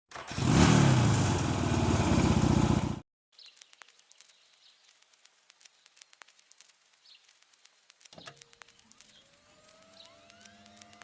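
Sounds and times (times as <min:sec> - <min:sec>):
motorcycle engine running: 0:00.1 - 0:03.0
quiet outdoor background: 0:00.1 - 0:11.0
faint clicks: 0:03.4 - 0:11.0.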